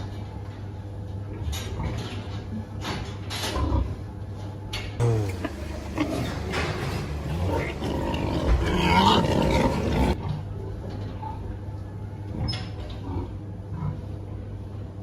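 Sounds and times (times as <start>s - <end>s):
steady low hum: 0.0s - 15.0s
pigs grunting and growling: 5.0s - 10.5s, 12.3s - 14.5s.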